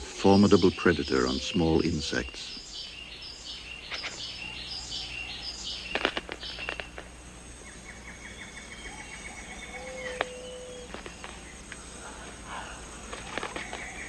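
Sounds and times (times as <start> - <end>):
high chirping bird calls: 0.0 - 14.0
high insect whine: 0.0 - 14.0
pulsed insect trill: 0.0 - 14.0
sharp clicks: 5.9 - 7.1.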